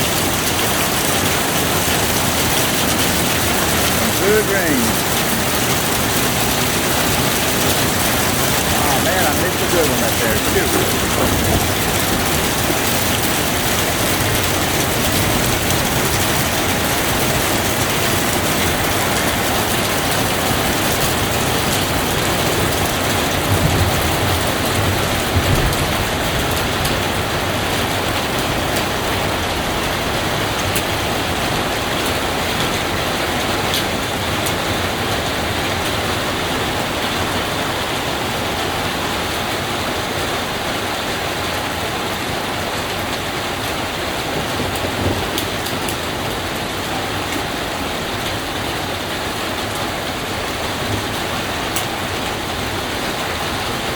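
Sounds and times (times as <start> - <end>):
steady rain: 0.0 - 53.9
low bumps: 2.8 - 15.8.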